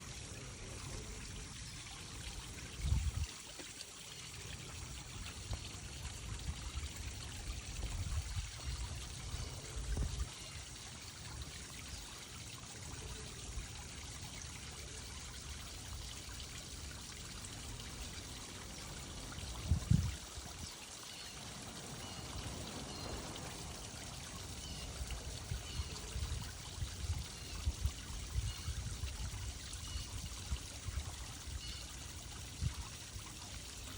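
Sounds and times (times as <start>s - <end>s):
running water rushing: 0.0s - 33.9s.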